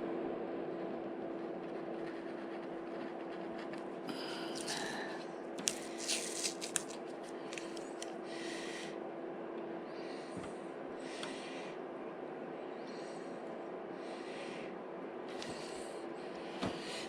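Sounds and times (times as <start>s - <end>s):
faint steady hum: 0.0s - 17.0s
paper rustling: 5.6s - 8.1s.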